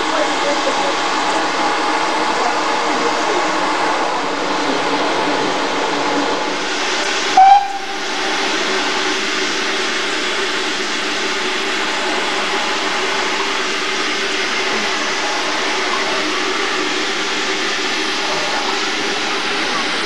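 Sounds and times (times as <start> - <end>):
steam train running: 0.0 - 20.0
single loud tone: 7.4 - 8.0.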